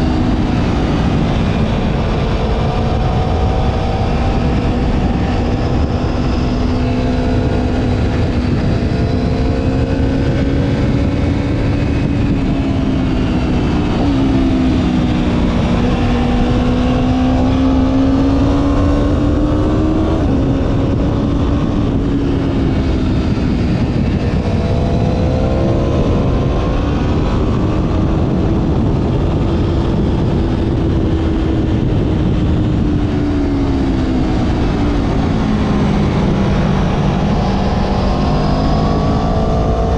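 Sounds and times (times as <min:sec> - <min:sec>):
motorcycle engine cruising: 0:00.0 - 0:39.9
wind rush on microphone: 0:00.0 - 0:39.9.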